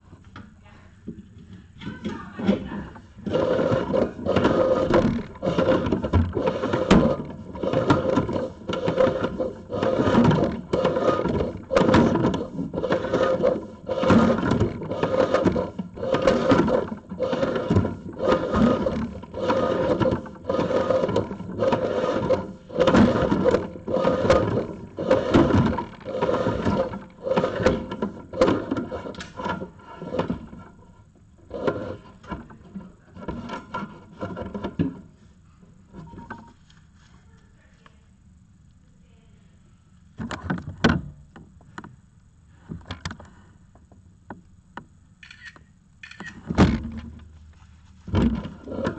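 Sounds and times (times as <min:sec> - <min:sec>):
cable scraping inside metal duct: 0:01.9 - 0:35.1, 0:47.8 - 0:48.9.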